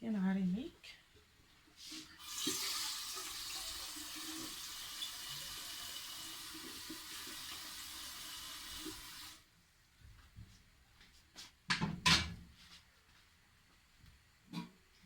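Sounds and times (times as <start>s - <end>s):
water running from tap: 1.8s - 9.4s.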